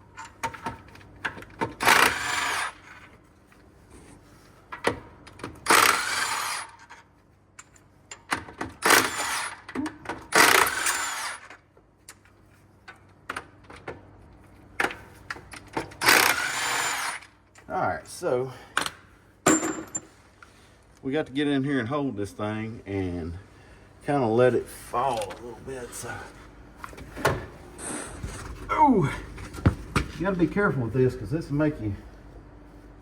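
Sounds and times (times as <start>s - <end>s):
power tool running out bolts: 1.8s - 2.9s, 5.6s - 6.9s, 8.8s - 9.7s, 10.3s - 11.6s, 16.0s - 17.3s.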